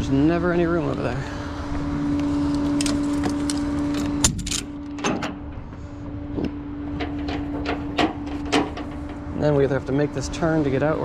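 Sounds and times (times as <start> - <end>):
truck cab hum: 0.0 - 11.0
clunks and rattles: 2.6 - 9.6.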